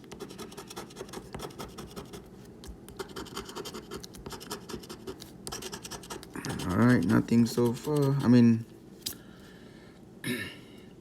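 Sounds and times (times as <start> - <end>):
coin scratching lottery ticket: 3.0 - 8.4.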